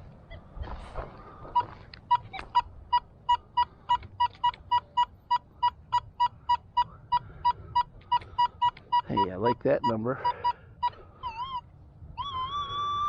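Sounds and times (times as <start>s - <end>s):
metal detector beeping: 1.5s - 11.6s.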